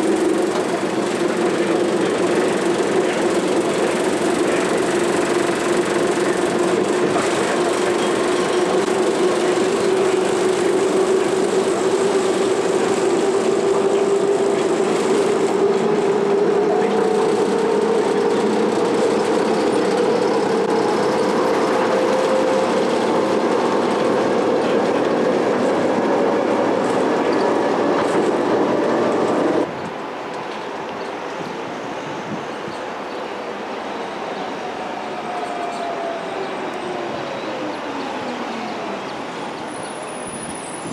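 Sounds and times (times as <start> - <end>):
rail vehicle running on track: 0.0 - 40.9.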